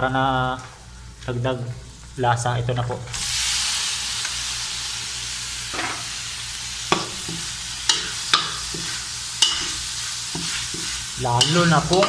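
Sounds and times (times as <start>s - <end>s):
liver sizzling in hot oil: 3.2s - 12.0s.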